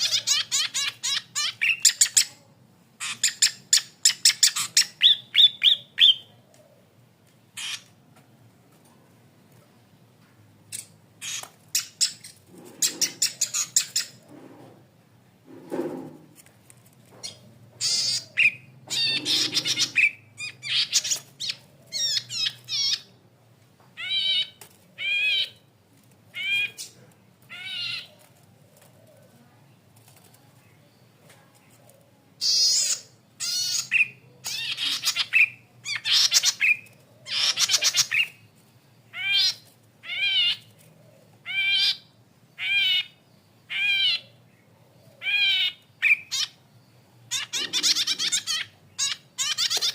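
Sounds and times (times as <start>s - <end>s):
bird ticking and buzzy trills: 17.2s - 23.4s.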